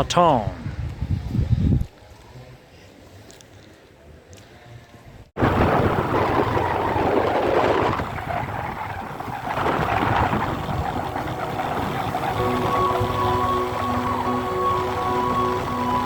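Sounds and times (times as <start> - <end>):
wind rushing over microphone: 0.0 - 2.0, 5.1 - 16.0
motorcycle running: 6.1 - 16.0.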